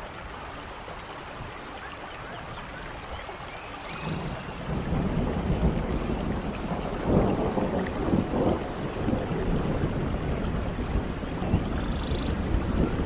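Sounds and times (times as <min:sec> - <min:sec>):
steady rain: 0:00.0 - 0:13.0
thunder rumbling: 0:03.9 - 0:13.0.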